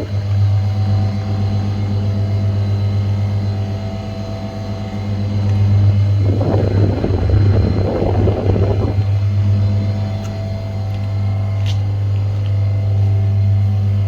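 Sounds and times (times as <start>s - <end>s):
condensing unit humming: 0.0s - 14.0s
rough rushing noise: 6.2s - 9.1s.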